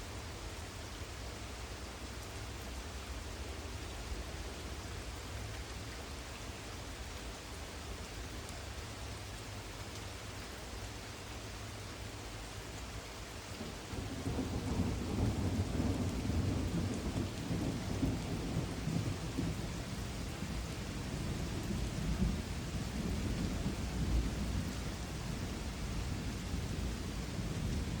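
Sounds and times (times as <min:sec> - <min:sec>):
rain falling: 0:00.0 - 0:28.0
thunder rumbling: 0:13.6 - 0:28.0.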